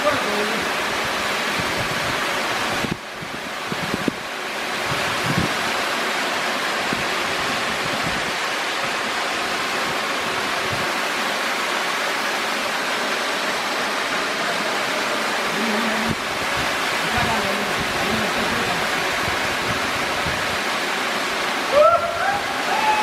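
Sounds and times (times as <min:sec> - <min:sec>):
waterfall rushing: 0:00.0 - 0:23.0
wind thumps on microphone: 0:01.6 - 0:04.2, 0:04.8 - 0:05.7, 0:16.0 - 0:20.6.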